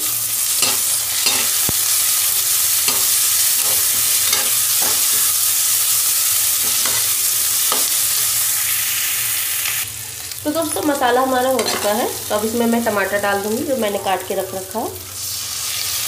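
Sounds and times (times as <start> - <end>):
onions sizzling in hot oil: 0.0 - 16.0
spatula scraping a pan: 2.9 - 5.4, 6.6 - 8.3.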